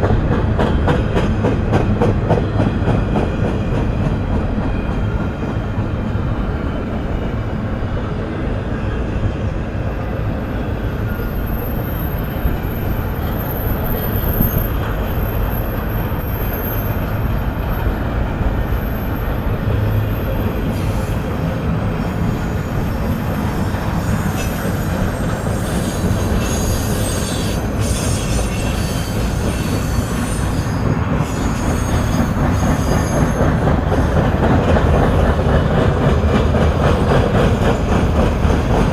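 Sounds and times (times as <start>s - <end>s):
train wheels rumbling on track: 0.0s - 38.9s
high wheel squeal: 22.1s - 33.5s.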